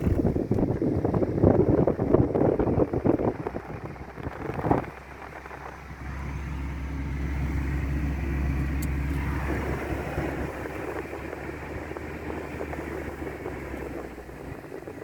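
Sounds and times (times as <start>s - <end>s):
car jolting and rattling: 0.0s - 15.0s
engine and tyre drone: 0.0s - 15.0s.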